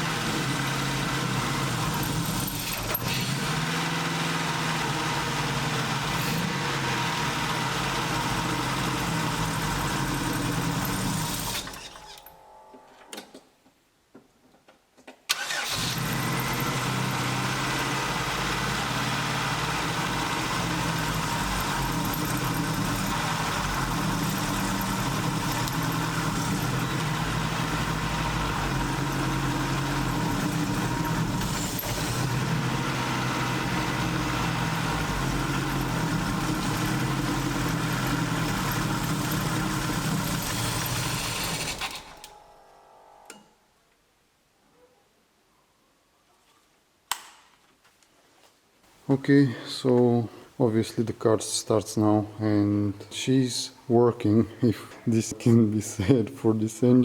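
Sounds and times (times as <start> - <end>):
car engine idling: 0.0 - 11.8, 15.4 - 42.2
starter motor cranking: 0.0 - 12.3, 15.3 - 42.4.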